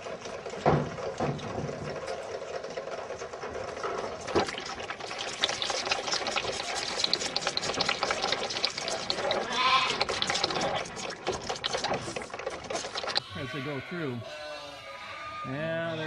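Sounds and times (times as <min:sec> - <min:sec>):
clattering and knocking: 0:00.0 - 0:05.7
calves shuffling: 0:00.0 - 0:16.0.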